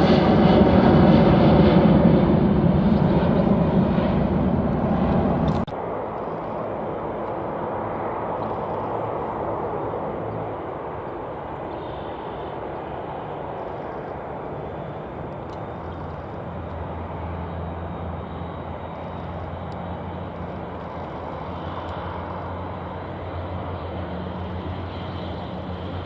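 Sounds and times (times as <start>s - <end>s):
aircraft engine rumble: 0.0s - 26.0s.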